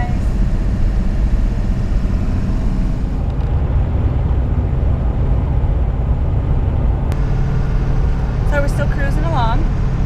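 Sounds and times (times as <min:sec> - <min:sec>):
vehicle cabin rumble: 0:00.0 - 0:10.0.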